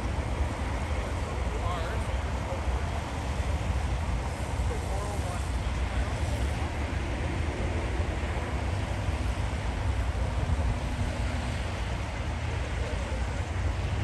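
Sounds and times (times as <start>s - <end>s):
highway traffic noise: 0.0s - 14.0s.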